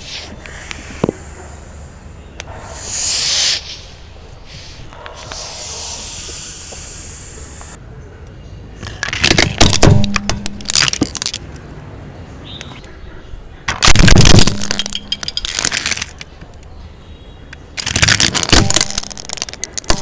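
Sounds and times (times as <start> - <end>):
hissing rushes: 0.0 - 7.8
plastic toys cracking under tyre: 8.8 - 11.8, 13.7 - 16.7, 17.5 - 20.0.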